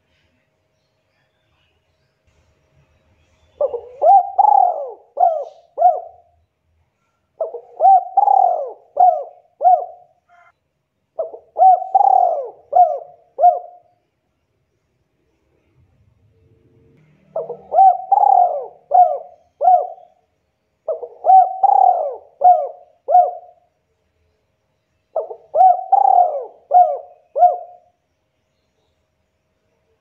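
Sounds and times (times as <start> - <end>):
dove cooing: 3.6 - 6.3, 7.4 - 10.5, 11.2 - 13.9, 17.2 - 20.2, 20.8 - 23.7, 25.1 - 27.9.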